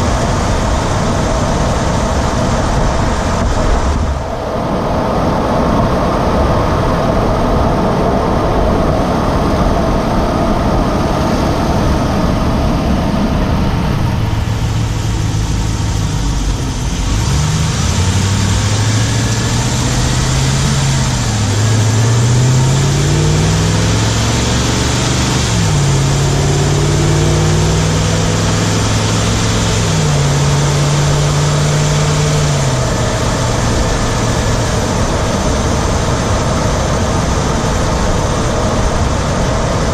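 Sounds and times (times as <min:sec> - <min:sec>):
wind and road noise: 0:00.0 - 0:39.9
truck engine running: 0:10.2 - 0:39.9.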